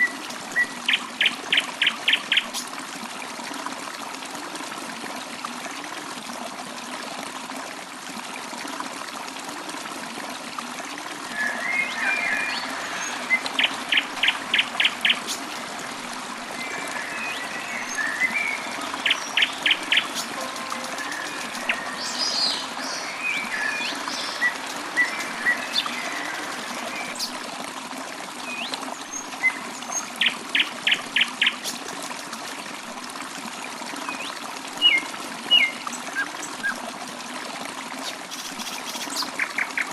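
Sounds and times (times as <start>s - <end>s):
stream trickling: 0.0s - 39.9s
birds singing and chirping: 11.3s - 27.4s.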